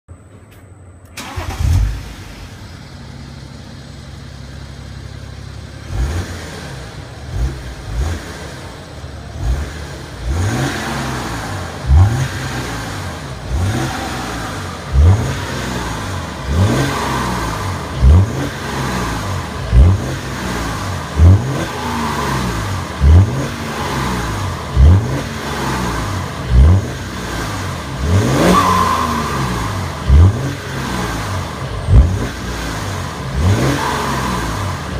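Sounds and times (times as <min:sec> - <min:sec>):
diesel engine starting: 0:00.4 - 0:34.9
diesel engine idling and revving: 0:01.0 - 0:34.9.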